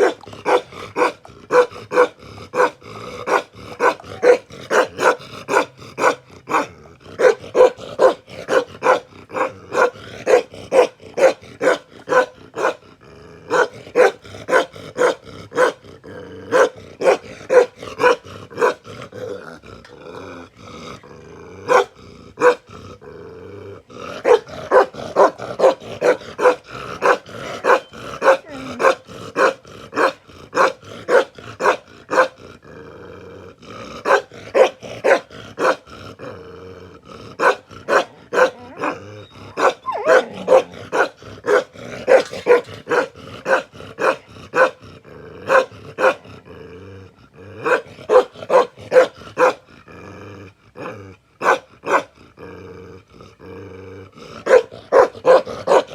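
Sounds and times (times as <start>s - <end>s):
dog barking: 0.0s - 12.8s, 13.5s - 15.8s, 16.5s - 18.8s, 21.7s - 22.6s, 24.2s - 32.4s, 34.0s - 35.8s, 37.4s - 44.8s, 45.5s - 46.2s, 47.6s - 49.6s, 51.4s - 52.1s, 54.4s - 55.9s.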